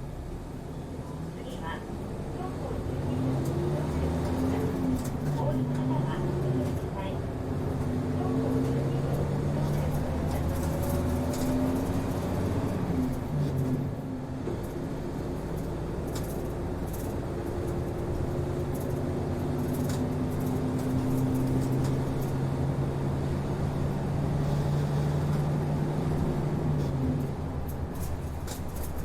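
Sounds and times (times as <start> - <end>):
bus diesel engine humming: 0.0 - 29.0
light rattles: 8.5 - 13.9, 14.5 - 22.5, 23.7 - 29.0.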